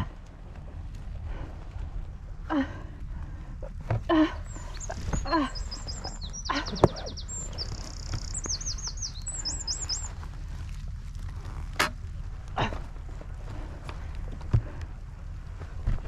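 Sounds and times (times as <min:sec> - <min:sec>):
songbird singing: 0:03.0 - 0:10.8.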